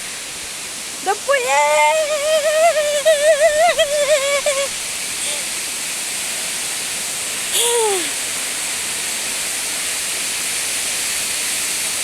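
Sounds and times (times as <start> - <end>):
waterfall rushing: 0.0 - 12.0
person exclaiming: 1.1 - 5.5, 7.6 - 8.2.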